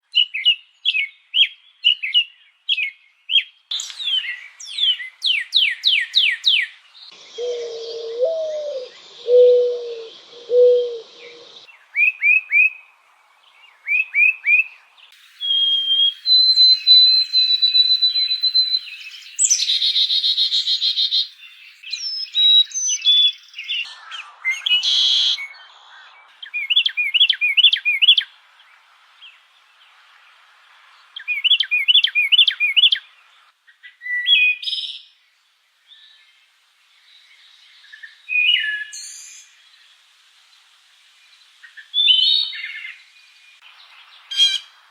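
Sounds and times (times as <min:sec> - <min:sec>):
bird chirps: 0:01.9 - 0:12.8, 0:13.8 - 0:28.3
low bird call: 0:07.2 - 0:12.7
whistled bird note: 0:15.3 - 0:21.1.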